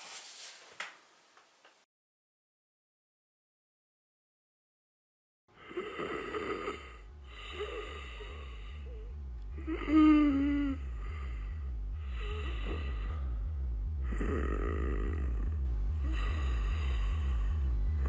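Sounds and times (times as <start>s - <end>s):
steady low hum: 5.5s - 18.0s
person snoring: 5.6s - 18.0s.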